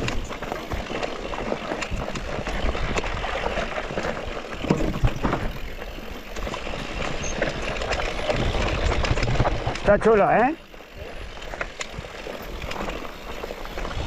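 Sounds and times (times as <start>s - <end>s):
bike rattling over bumps: 0.0s - 14.0s
bike tyre noise: 0.0s - 14.0s
wind on microphone: 6.5s - 10.0s.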